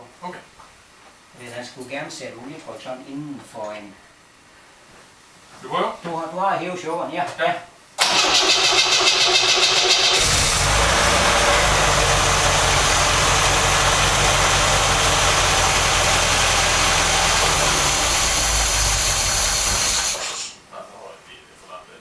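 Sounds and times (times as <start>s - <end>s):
car engine running steadily: 10.1s - 20.4s.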